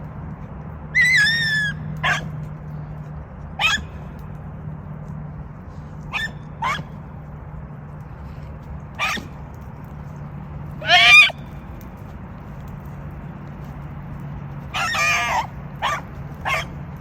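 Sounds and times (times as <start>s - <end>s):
hounds baying: 1.0s - 2.5s, 3.6s - 4.1s, 6.0s - 7.0s, 9.0s - 9.4s, 10.8s - 11.5s, 14.6s - 17.0s.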